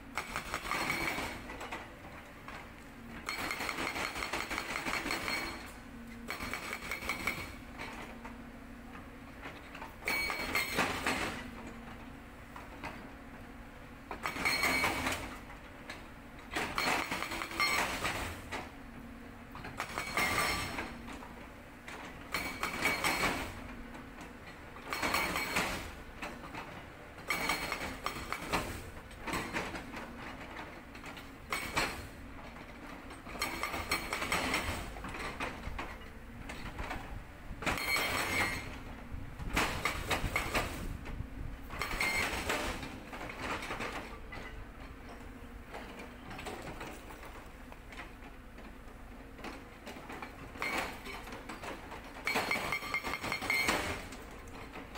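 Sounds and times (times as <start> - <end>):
excavator engine hum: 0.0 - 54.9
hydraulic breaker hammering rock: 0.1 - 8.1, 9.4 - 11.6, 14.1 - 15.5, 16.4 - 18.7, 19.5 - 21.2, 22.1 - 23.7, 24.8 - 32.2, 33.1 - 41.0, 41.7 - 45.2, 49.4 - 54.9.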